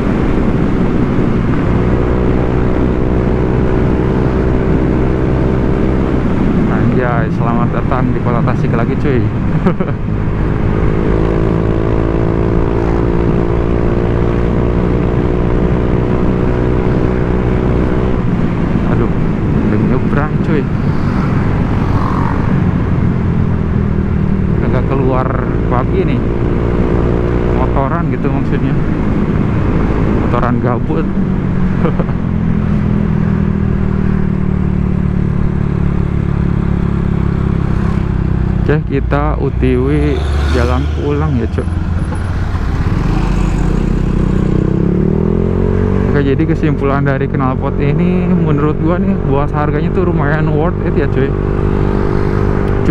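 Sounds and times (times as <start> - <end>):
scooter engine cruising: 9.3 - 27.8, 31.1 - 48.0.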